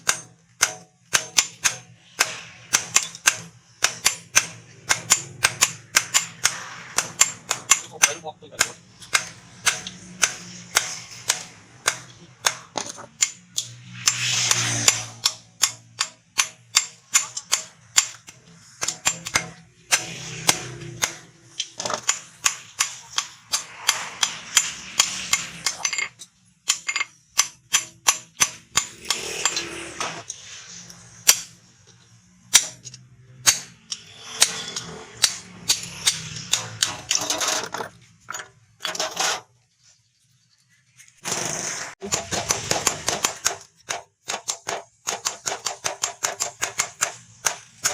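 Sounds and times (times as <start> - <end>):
hammer striking steel on anvil: 0.0 - 31.6, 32.4 - 37.3, 42.0 - 47.9
rushing noise: 23.4 - 26.0.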